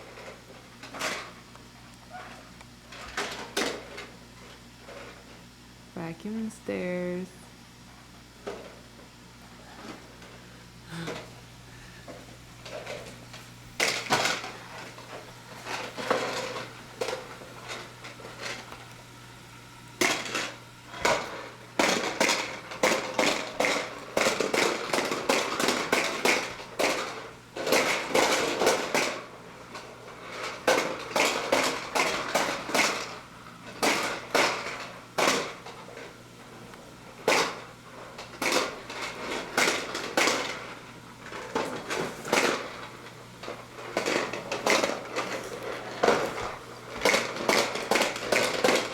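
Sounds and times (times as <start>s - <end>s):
faint steady hum: 0.0s - 48.9s
hard plastic clattering: 12.1s - 19.0s, 38.2s - 48.9s.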